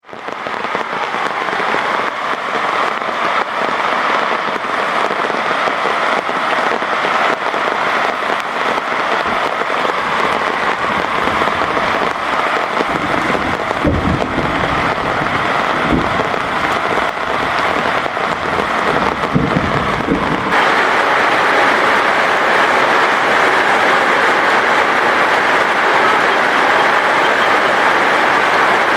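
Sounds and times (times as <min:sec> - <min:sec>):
heavy rain: 0:00.0 - 0:28.9
low rumbles: 0:09.2 - 0:28.9.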